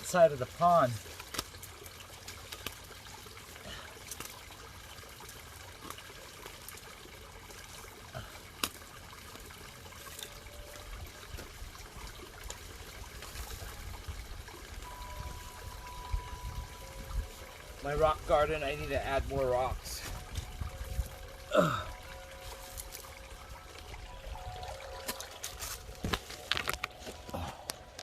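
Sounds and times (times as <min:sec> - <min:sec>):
water trickling in a pond: 0:00.0 - 0:28.0
small splashy ticks: 0:01.0 - 0:03.3, 0:04.0 - 0:06.9.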